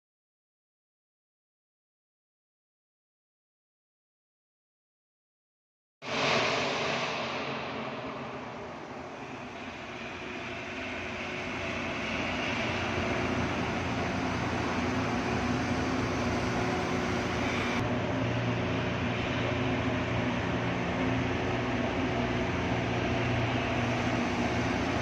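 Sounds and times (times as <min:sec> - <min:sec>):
low steady tones: 0:06.2 - 0:25.0
mechanical hum: 0:07.4 - 0:25.0.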